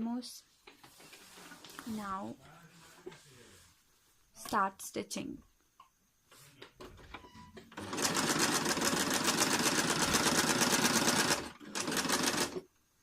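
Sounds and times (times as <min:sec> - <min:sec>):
sewing machine stitching: 0:07.7 - 0:12.6.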